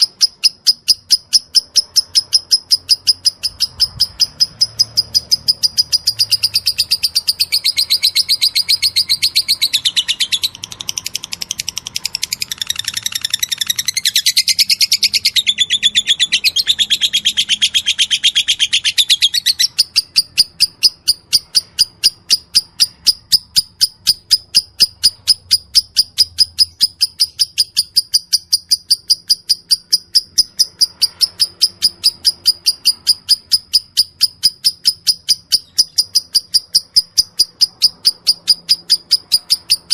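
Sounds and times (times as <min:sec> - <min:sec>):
lovebird chirping: 0:00.0 - 0:39.9.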